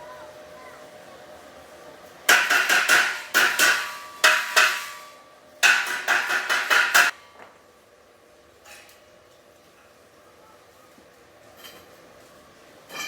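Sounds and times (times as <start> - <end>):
hammer striking metal: 2.3 - 7.2.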